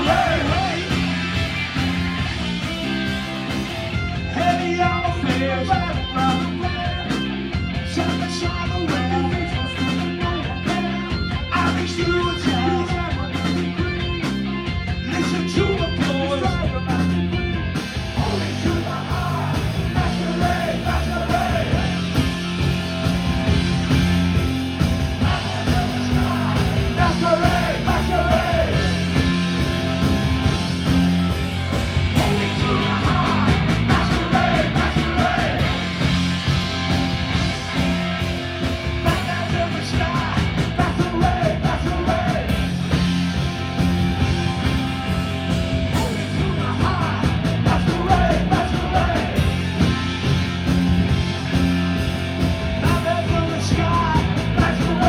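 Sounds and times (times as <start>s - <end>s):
bass guitar: 0.0s - 55.0s
drums: 0.0s - 55.0s
electric guitars: 0.0s - 55.0s
person singing: 32.2s - 35.9s.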